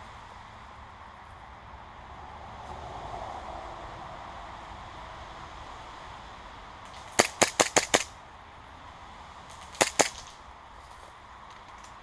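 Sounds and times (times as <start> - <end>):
airsoft gun shots: 6.9 - 8.2, 9.5 - 10.4.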